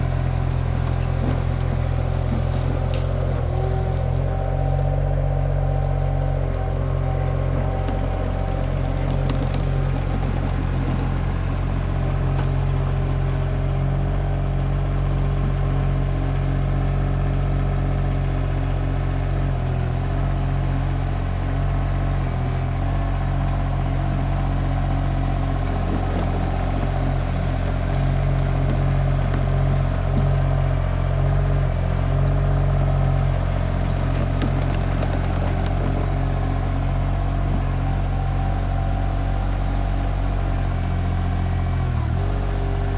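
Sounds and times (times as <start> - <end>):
skid steer engine running: 0.0 - 42.9.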